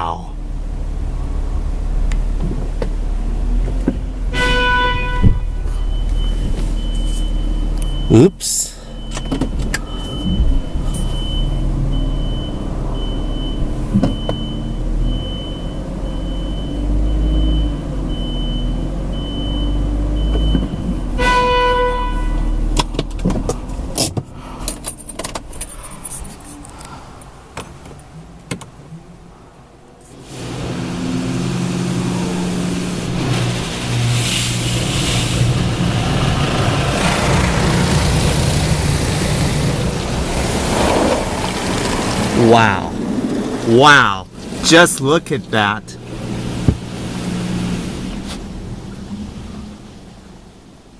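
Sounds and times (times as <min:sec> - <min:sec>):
short tone: 0:04.3 - 0:12.6, 0:21.2 - 0:22.7
car wash machinery rushing: 0:30.1 - 0:50.9.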